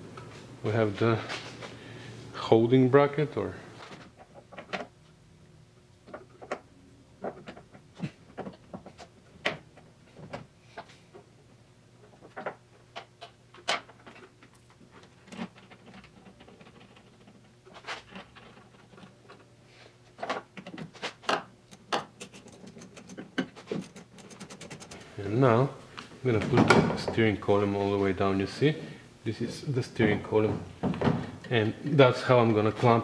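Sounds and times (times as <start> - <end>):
metal parts clicking and knocking: 20.2 - 25.1.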